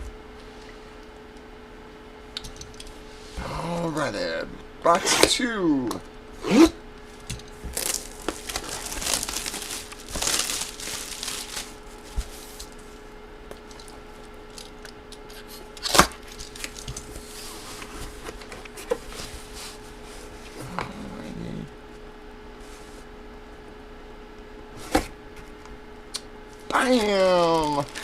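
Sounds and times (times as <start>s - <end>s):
packaging crinkling and tearing: 7.7s - 12.8s, 15.8s - 17.1s, 26.6s - 28.0s.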